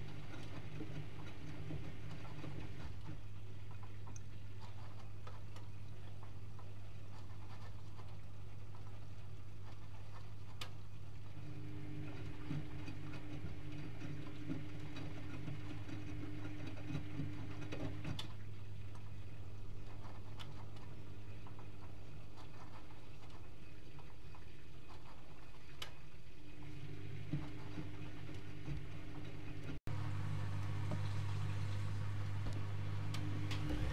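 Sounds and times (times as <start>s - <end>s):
washing machine low hum: 0.0s - 33.9s
higher motor hum: 26.5s - 33.9s.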